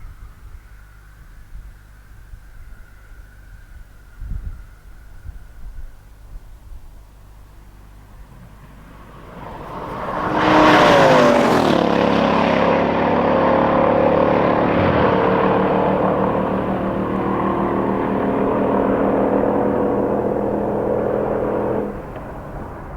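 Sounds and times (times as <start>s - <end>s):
car engine revving: 7.9s - 22.9s.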